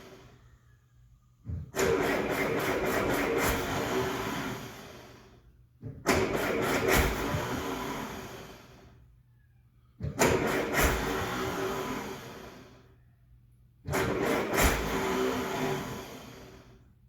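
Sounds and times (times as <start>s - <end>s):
engine cranking and firing: 1.5s - 5.2s, 5.8s - 8.8s, 10.0s - 12.6s, 13.8s - 16.6s.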